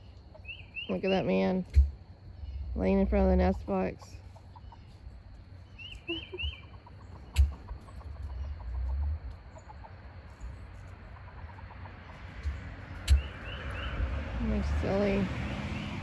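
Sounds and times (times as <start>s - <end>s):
chickens clucking softly: 3.7s - 13.9s.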